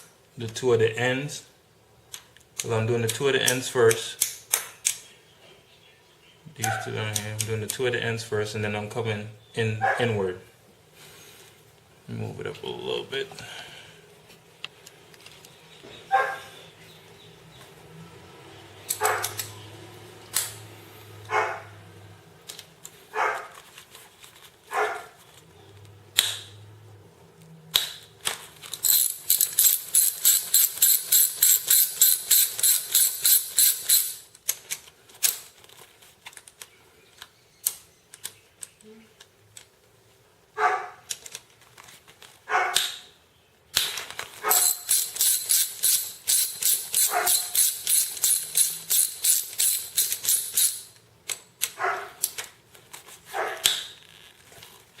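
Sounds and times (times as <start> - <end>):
ratchet wrench clicking: 28.7 - 34.3, 44.5 - 51.4.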